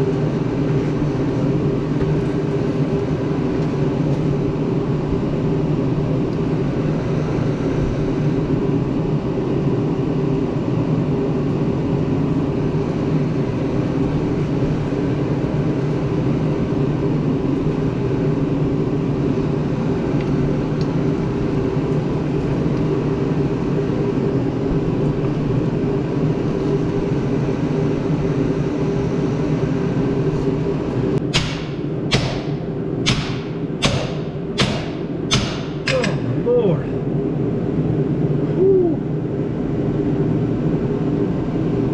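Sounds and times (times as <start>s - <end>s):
engine running steadily: 0.0s - 41.9s
sharp knocks: 31.3s - 36.2s.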